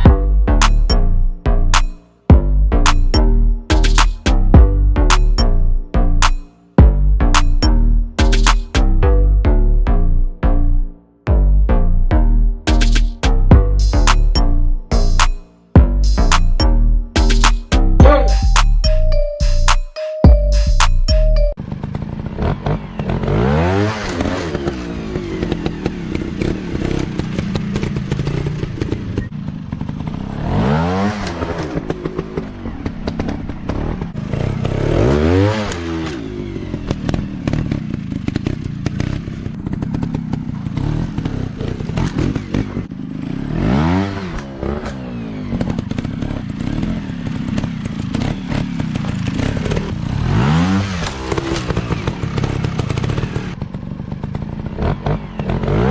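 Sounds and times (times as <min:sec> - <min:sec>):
dirt bike engines revving: 0:21.9 - 0:55.9.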